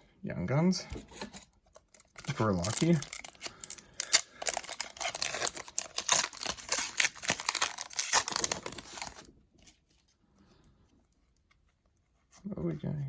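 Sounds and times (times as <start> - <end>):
wrapper tearing and crinkling: 1.3 - 9.8.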